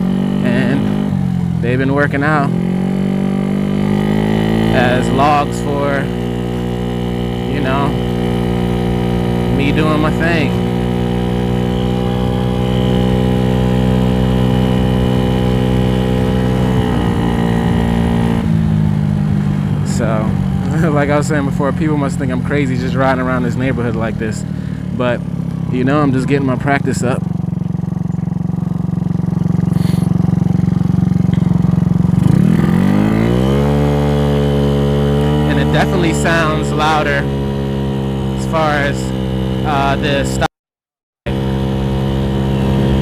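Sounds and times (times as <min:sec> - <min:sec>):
scooter engine running: 0:00.0 - 0:40.5, 0:41.3 - 0:43.0.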